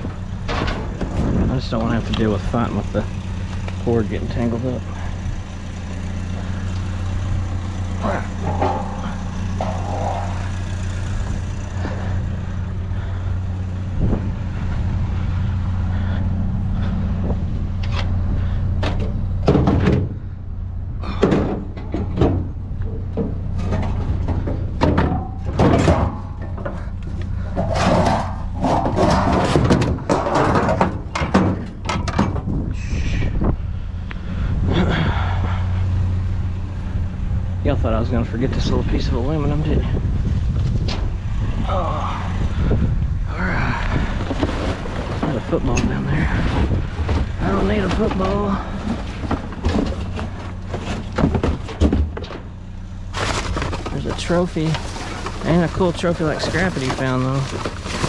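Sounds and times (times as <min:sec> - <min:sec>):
sharp knocks and clatter: 0:00.0 - 0:13.2, 0:18.8 - 0:20.2, 0:21.0 - 0:32.6, 0:44.1 - 0:58.0
truck engine idling: 0:00.0 - 0:58.0.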